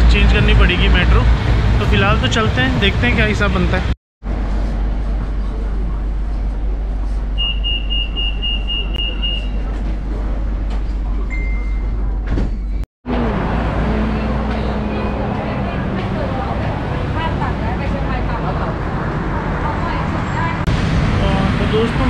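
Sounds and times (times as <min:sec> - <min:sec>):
train rumbling: 0:00.0 - 0:22.0
short single tone: 0:07.4 - 0:09.6
rapid high door warning beeps: 0:07.4 - 0:09.7.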